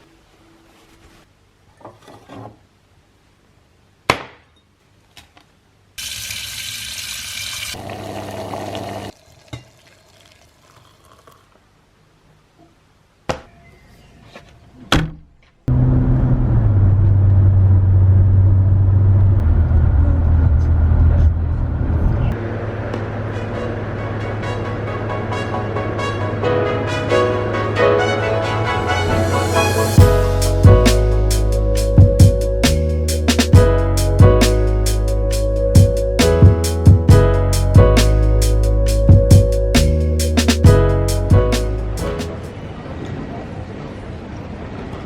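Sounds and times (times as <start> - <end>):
music with heavy bass: 23.4 - 42.4.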